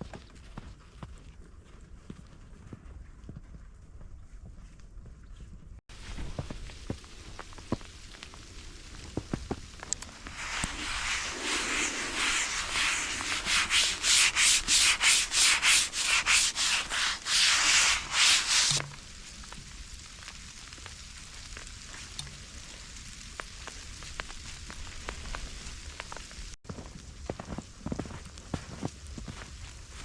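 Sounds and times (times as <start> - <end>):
faint patter with light ticks: 0.0 - 10.8, 18.7 - 30.0
rhythmic scraping strokes: 10.2 - 18.8.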